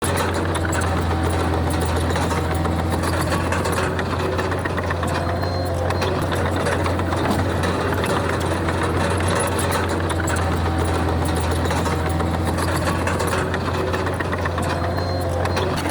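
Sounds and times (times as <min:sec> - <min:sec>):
bulldozer diesel engine droning: 0:00.0 - 0:15.9
faint rapid clatter: 0:00.0 - 0:15.9.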